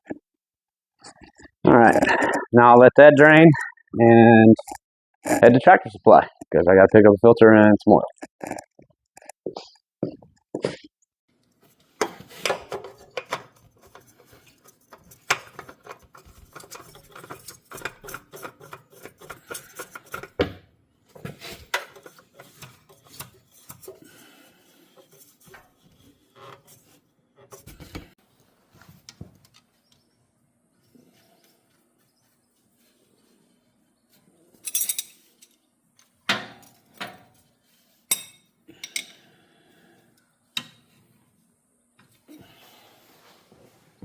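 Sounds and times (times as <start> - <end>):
objects rubbing and scraping: 11.6 - 20.4, 21.1 - 29.0
objects clattering and knocking: 11.7 - 28.2.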